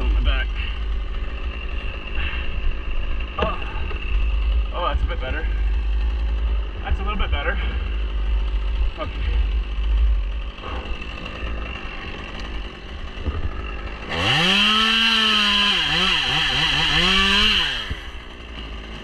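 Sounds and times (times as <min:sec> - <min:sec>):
chainsaw revving: 0:00.0 - 0:19.0.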